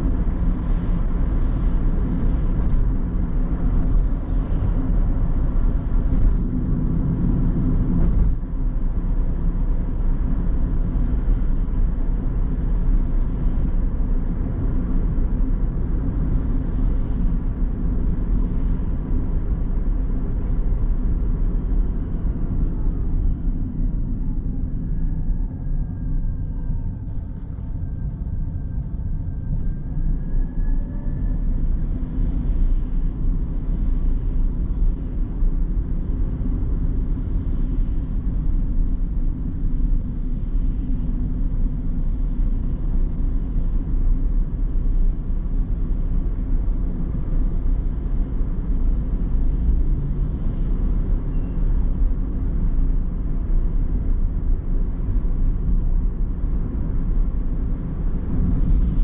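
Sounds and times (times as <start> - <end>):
car road and engine rumble: 0.0 - 59.0
faint thin whine: 0.0 - 59.0.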